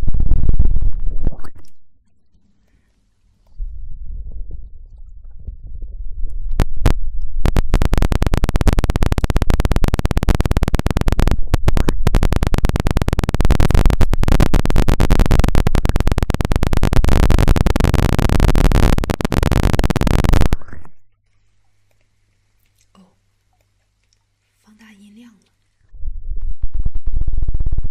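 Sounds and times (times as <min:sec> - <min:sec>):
loud electric crackle: 0:00.0 - 0:01.7, 0:03.6 - 0:21.0, 0:25.9 - 0:27.9.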